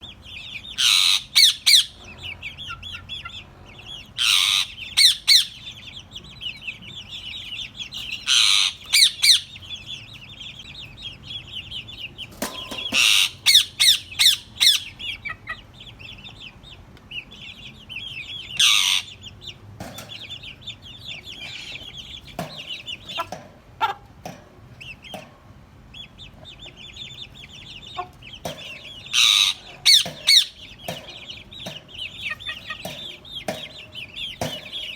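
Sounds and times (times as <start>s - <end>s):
loud parrot calls: 0.8s - 2.0s, 4.2s - 5.6s, 8.2s - 9.6s, 18.6s - 19.2s, 29.1s - 30.6s
parrot chattering: 0.8s - 3.3s, 4.1s - 5.8s, 8.1s - 9.6s, 12.9s - 15.7s, 18.6s - 19.2s, 29.0s - 34.9s.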